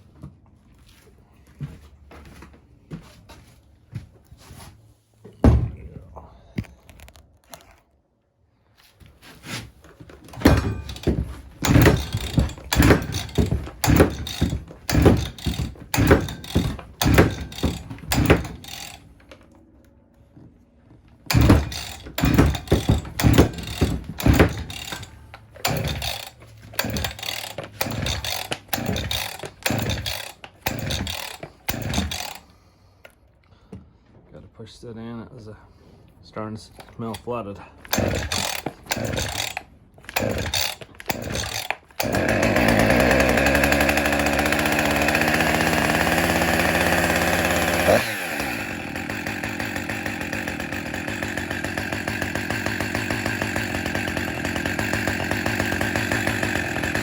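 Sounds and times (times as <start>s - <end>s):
chainsaw recoil starter pulls: 9.9s - 19.5s, 21.3s - 32.7s, 36.7s - 57.0s.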